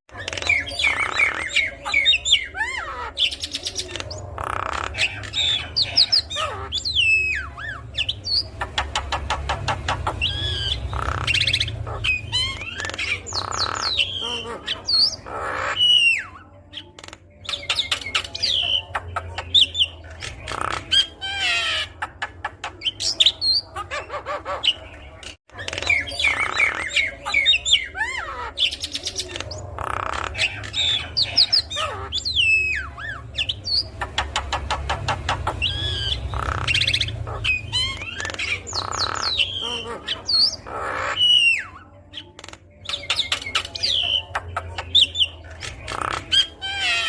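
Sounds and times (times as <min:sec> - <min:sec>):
myna squawking: 0:25.6 - 0:41.7.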